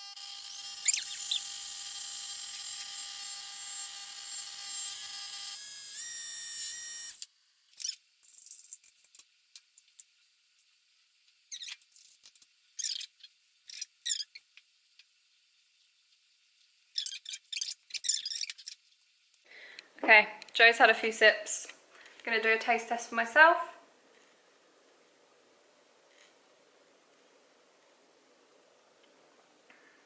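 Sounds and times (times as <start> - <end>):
coffee appliance whine: 0.0 - 7.5
short high squeaks: 0.8 - 1.5, 7.7 - 9.2, 11.5 - 14.5, 16.9 - 18.8.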